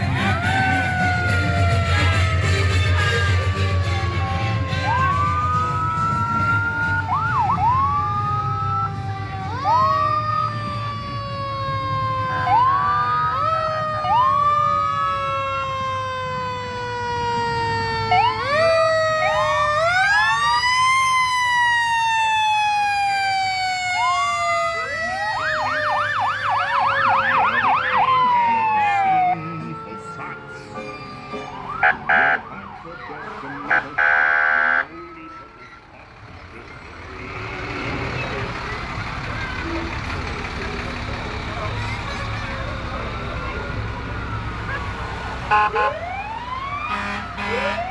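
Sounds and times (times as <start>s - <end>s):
fire truck sirens wailing: 0.0s - 47.9s
low rumble of trucks: 0.0s - 47.9s
fast warbling siren yelp: 0.1s - 2.5s, 3.3s - 35.9s.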